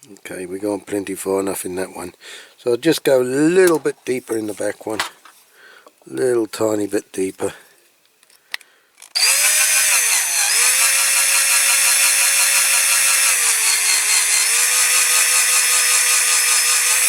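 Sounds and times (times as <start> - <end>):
electric drill drilling metal: 9.1 - 17.0.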